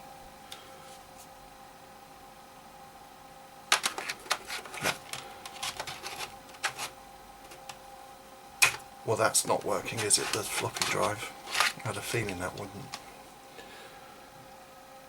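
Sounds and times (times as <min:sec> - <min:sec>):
faint steady hum: 0:00.0 - 0:15.0
floppy drive clicking and rattling: 0:03.7 - 0:07.9, 0:08.6 - 0:13.2.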